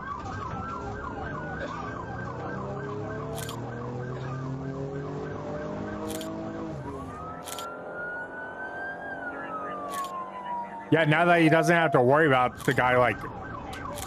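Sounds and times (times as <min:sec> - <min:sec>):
police siren yelping: 0:00.0 - 0:14.0
vehicle engine running: 0:02.3 - 0:07.7.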